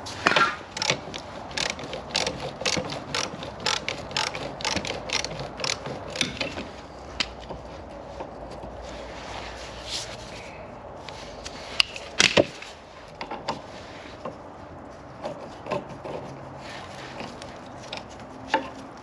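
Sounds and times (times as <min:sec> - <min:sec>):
ratchet spanner clicking: 0:00.7 - 0:06.6.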